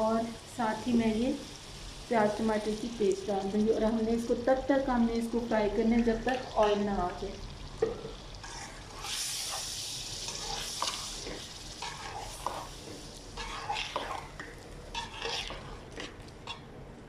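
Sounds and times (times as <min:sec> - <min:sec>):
food sizzling in a pan: 0:00.0 - 0:16.7
spatula scraping a pan: 0:08.4 - 0:16.7.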